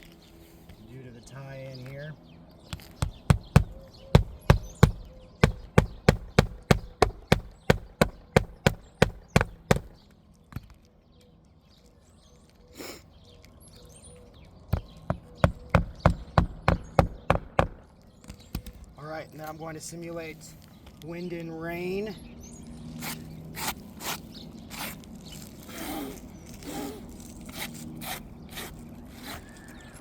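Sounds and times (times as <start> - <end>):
hammer driving nails: 2.8 - 10.0, 14.8 - 18.8.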